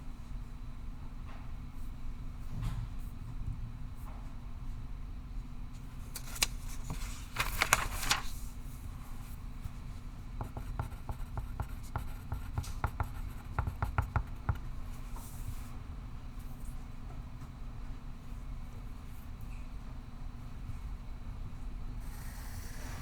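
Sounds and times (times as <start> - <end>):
low room hum: 0.0 - 23.0
pencil writing on paper: 10.4 - 15.4.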